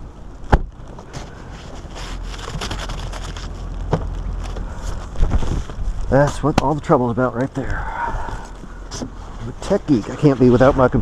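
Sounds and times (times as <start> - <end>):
handling rustles and clicks: 0.8 - 7.6
wind buffeting microphone: 4.0 - 11.0.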